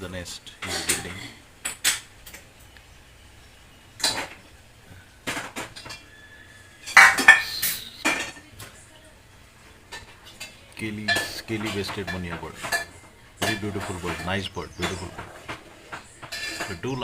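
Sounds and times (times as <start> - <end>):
dishes and cutlery clinking: 0.5 - 2.5, 4.0 - 4.5, 5.2 - 8.8, 9.9 - 17.0.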